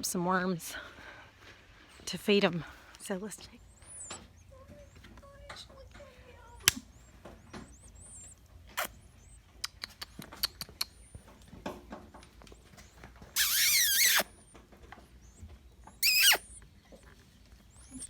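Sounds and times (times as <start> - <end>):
nestling birds chirping: 0.0 - 18.0
loud wavering squeal: 16.0 - 16.5.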